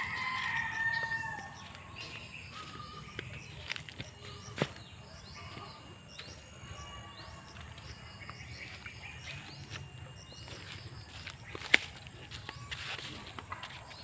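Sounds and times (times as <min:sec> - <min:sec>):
faint high whine: 0:00.0 - 0:14.0
small birds chirping: 0:00.0 - 0:14.0.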